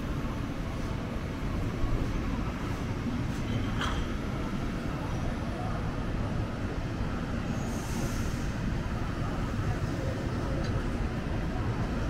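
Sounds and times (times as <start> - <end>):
train rumbling: 0.0 - 12.0
short hiss: 7.7 - 8.5.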